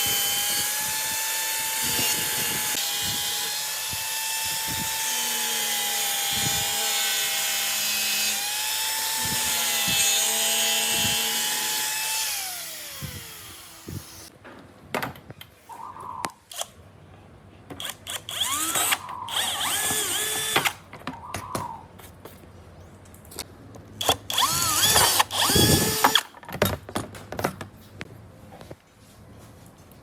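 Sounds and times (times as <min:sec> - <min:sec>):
hand-held power tool running: 0:00.0 - 0:14.3, 0:17.8 - 0:20.7, 0:24.0 - 0:26.2.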